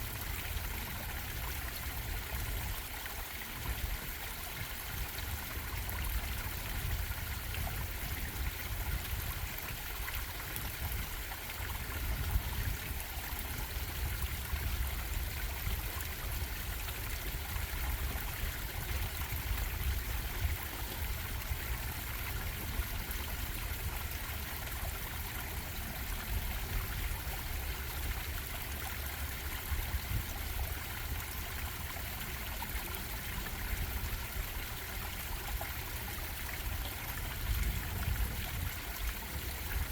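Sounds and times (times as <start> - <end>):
stream water bubbling: 0.0 - 39.9.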